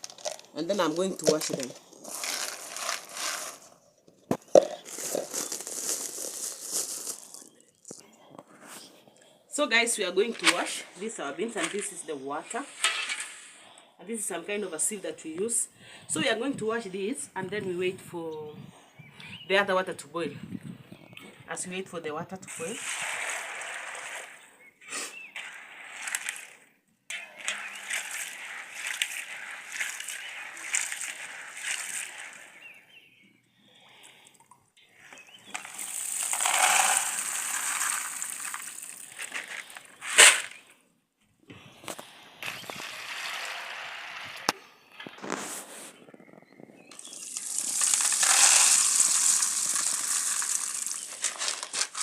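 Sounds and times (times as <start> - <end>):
beans washed in water sloshing: 0.0 - 3.8, 4.4 - 7.6, 22.5 - 24.5, 25.1 - 26.6, 27.2 - 32.8, 35.4 - 40.5, 42.4 - 44.5, 46.9 - 52.0.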